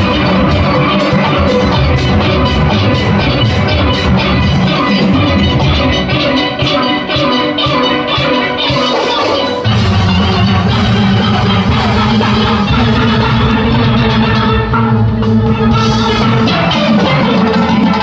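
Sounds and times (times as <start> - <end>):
percussion beat: 0.0 - 18.0
steel band playing: 0.0 - 18.0
deep bass part: 9.7 - 16.6.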